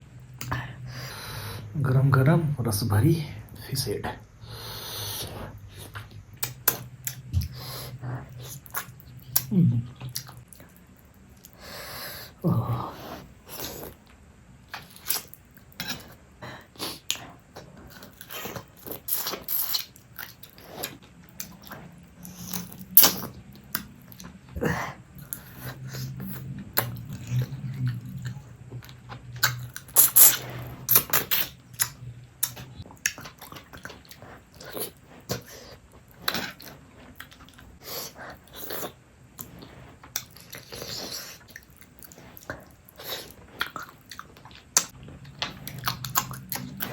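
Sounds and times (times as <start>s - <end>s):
chewing and sucking fish head: 14.7s - 46.9s.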